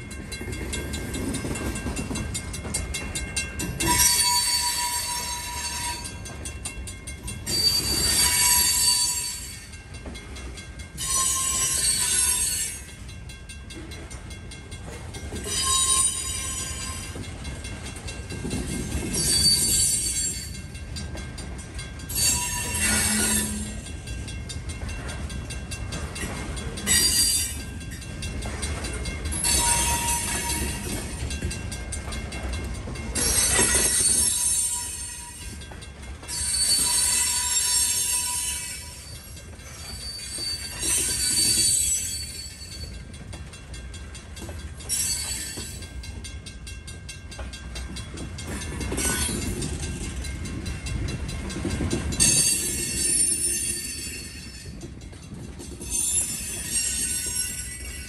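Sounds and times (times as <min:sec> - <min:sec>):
wheels rumbling on rail: 0:00.0 - 0:58.0
wheels squealing: 0:36.3 - 0:42.8.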